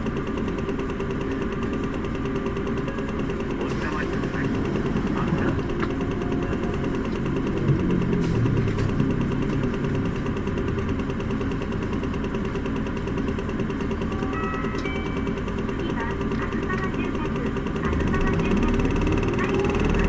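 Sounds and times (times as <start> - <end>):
diesel bus engine running: 0.0 - 20.0.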